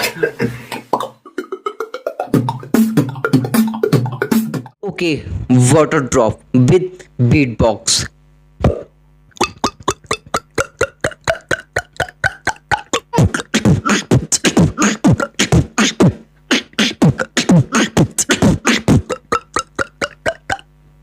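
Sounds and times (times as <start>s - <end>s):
beatboxing water-drop sounds: 0.8s - 4.8s, 8.6s - 20.7s.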